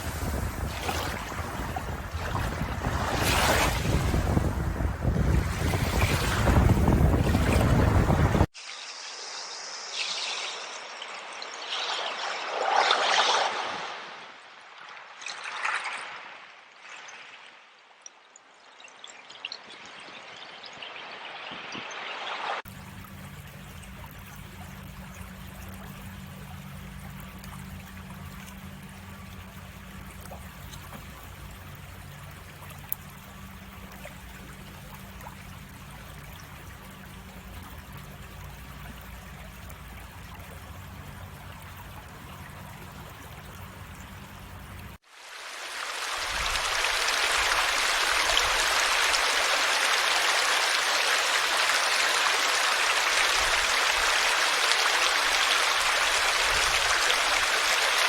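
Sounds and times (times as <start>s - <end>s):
loud rush of water: 0.0s - 8.5s, 44.9s - 58.0s
water trickling: 22.6s - 58.0s
low steady hum: 22.7s - 45.0s.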